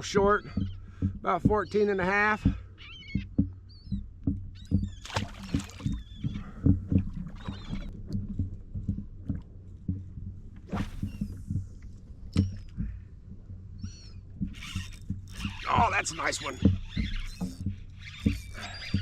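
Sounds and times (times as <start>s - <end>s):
bird calls: 0.0s - 7.9s, 10.7s - 11.5s, 13.8s - 19.0s
knocks and bumps on a kayak: 0.0s - 19.0s
water splashing: 4.6s - 12.8s, 14.3s - 19.0s.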